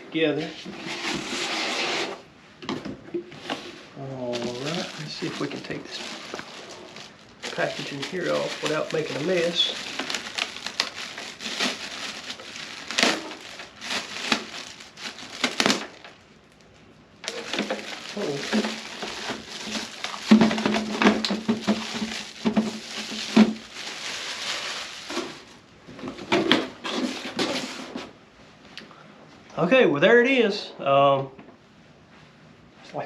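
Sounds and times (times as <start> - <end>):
plastic and cardboard crinkling: 2.8 - 28.2.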